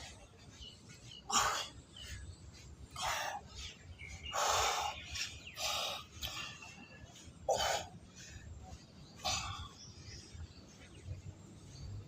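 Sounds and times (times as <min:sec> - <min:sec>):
harsh rasping bird calls: 0:02.9 - 0:08.0.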